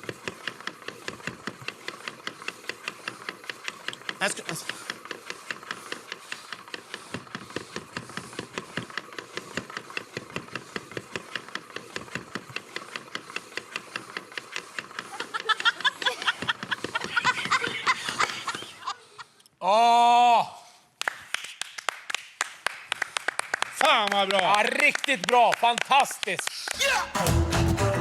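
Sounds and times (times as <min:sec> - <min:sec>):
rapid even ticking: 0:00.0 - 0:18.6
stifled snickering laughter: 0:15.0 - 0:19.4.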